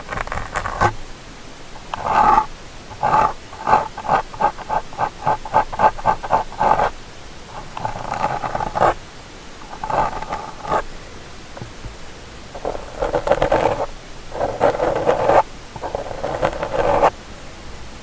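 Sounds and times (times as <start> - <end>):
ear-cleaning tool scraping: 0.0 - 1.0, 1.8 - 6.9, 7.5 - 9.0, 9.6 - 10.9, 12.6 - 17.1.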